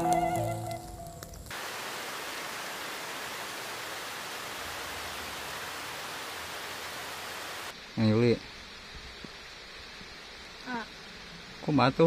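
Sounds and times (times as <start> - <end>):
heavy rain on trees and grass: 0.0 - 12.0.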